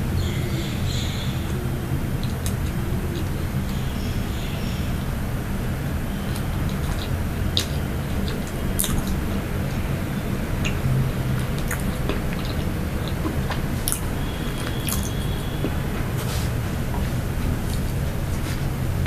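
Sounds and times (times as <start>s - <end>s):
steady low hum: 0.0s - 19.0s
chewing soft pastry: 5.9s - 19.0s
wet mouth clicks: 10.6s - 15.8s.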